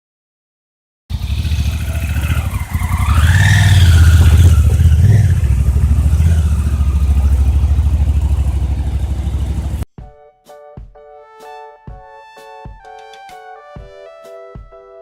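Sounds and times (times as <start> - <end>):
motorcycle engine revving: 1.1 - 9.8.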